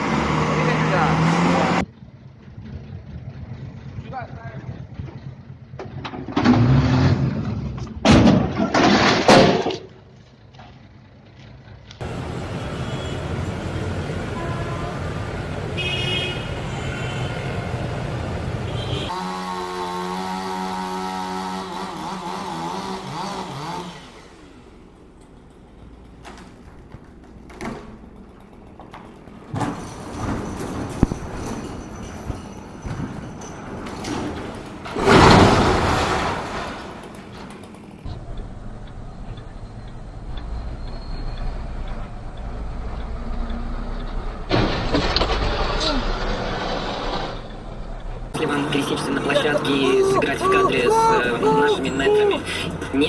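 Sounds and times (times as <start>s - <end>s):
heavy vehicle engine rumble: 0.0s - 19.2s, 24.0s - 53.0s
turn signal ticking: 38.0s - 44.5s.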